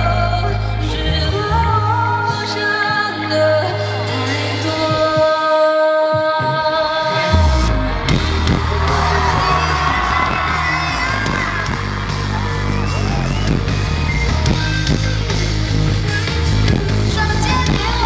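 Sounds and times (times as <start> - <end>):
live pop band playing: 0.0 - 18.0
audience whooping and yelling: 7.2 - 18.0
drum hits: 7.4 - 18.0.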